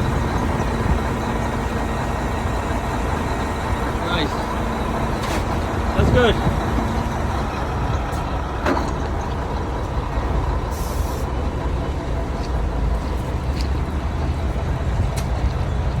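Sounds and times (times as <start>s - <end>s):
diesel engine running: 0.0s - 16.0s
air hiss: 10.7s - 11.4s.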